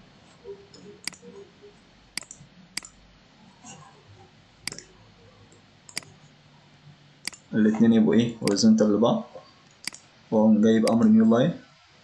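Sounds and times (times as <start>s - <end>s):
faint room hiss: 0.0s - 12.0s
computer mouse clicking: 0.7s - 1.4s, 2.2s - 3.0s, 4.6s - 4.9s, 5.5s - 6.2s, 7.2s - 7.5s, 8.4s - 8.7s, 9.6s - 10.1s, 10.8s - 11.1s.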